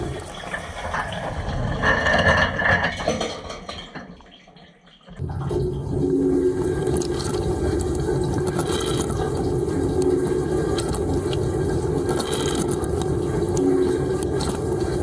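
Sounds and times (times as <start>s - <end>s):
wash pump hum: 0.0s - 1.5s, 5.2s - 15.0s
water spraying against dishes: 5.5s - 15.0s.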